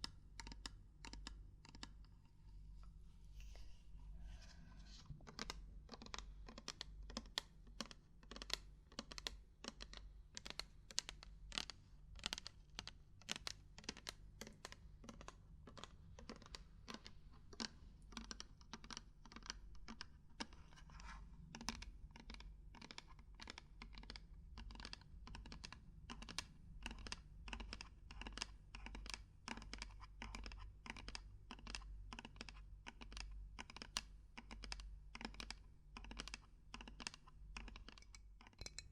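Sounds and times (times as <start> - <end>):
knocking and tapping on hard objects: 37.9 - 38.9.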